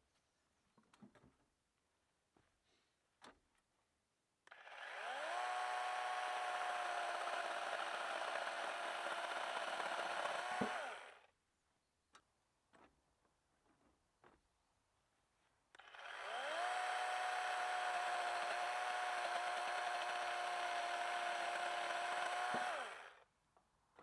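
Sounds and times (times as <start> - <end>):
chainsaw running: 4.5 - 11.3, 15.8 - 23.2.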